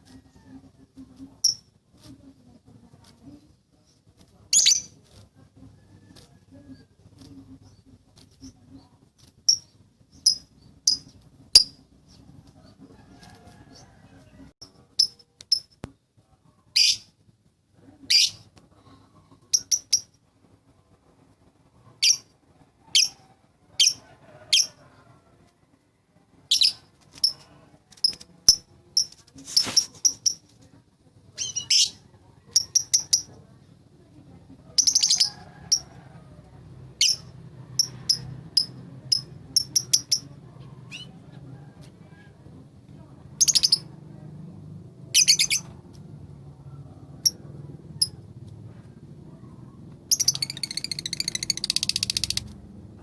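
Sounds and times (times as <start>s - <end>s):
lovebird chirping: 1.4s - 1.7s, 9.5s - 12.2s, 19.5s - 20.2s, 31.4s - 33.3s, 37.0s - 40.3s, 43.4s - 43.9s, 50.1s - 52.5s
lovebird rattling chatter: 9.4s - 11.8s, 32.6s - 33.3s, 50.1s - 52.6s.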